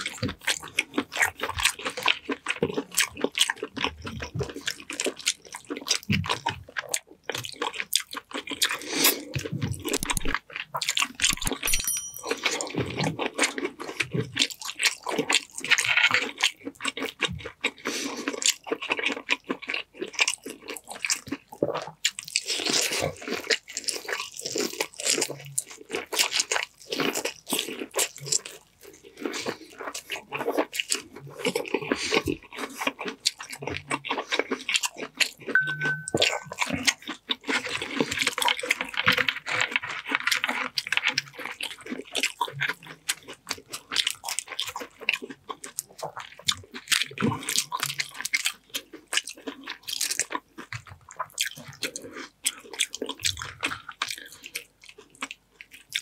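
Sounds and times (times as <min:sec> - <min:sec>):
chewing with crisp crunching: 0:00.0 - 0:56.0.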